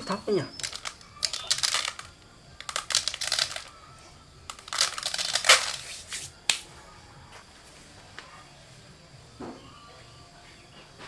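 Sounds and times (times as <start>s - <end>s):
rice rustling and crunching: 0.1s - 6.7s.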